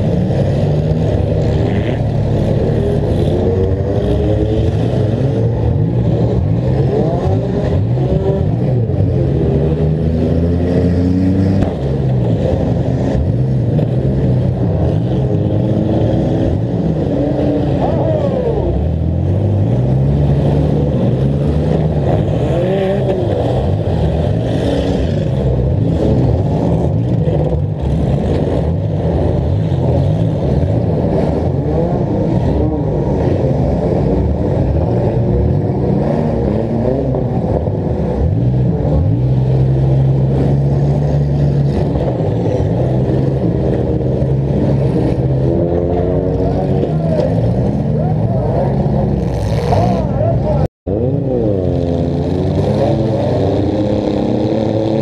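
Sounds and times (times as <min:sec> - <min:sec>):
car engine revving: 0:00.0 - 0:55.0
other car engines: 0:00.0 - 0:55.0.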